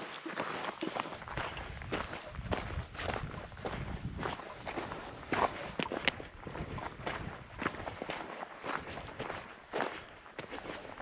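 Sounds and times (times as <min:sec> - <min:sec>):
footsteps on dirt trail: 0:00.0 - 0:11.0.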